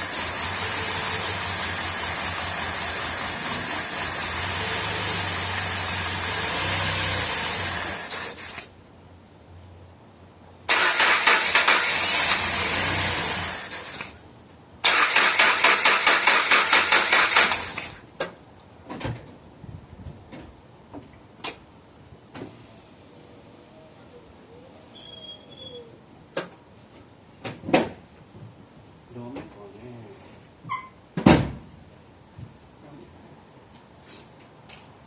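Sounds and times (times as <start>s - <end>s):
car engine running and sputtering: 0.0s - 8.4s
starter motor cranking: 10.7s - 14.1s, 14.8s - 18.0s.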